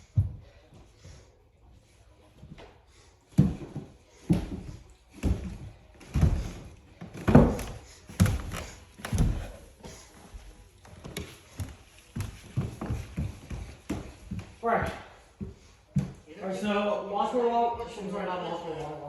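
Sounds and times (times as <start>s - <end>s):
footsteps on stairs: 0.0s - 16.3s.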